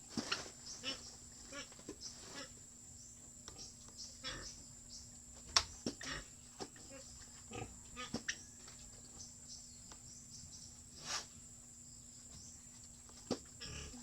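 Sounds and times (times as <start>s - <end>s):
pigs grunting: 3.6s - 4.6s, 6.0s - 8.2s, 13.6s - 14.0s.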